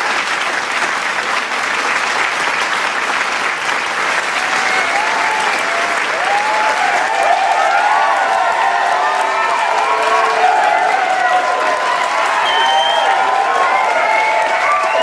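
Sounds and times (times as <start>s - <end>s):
crowd clapping: 0.0s - 15.0s
crowd cheering and whooping: 4.2s - 15.0s.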